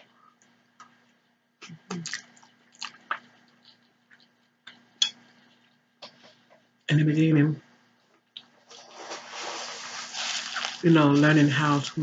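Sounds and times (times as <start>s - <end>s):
wet chewing: 1.9s - 4.8s.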